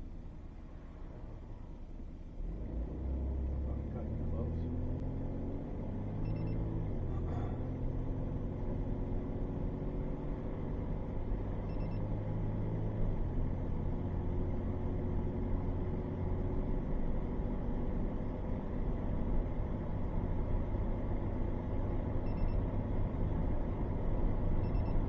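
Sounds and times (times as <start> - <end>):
car engine and road drone: 0.0 - 25.0.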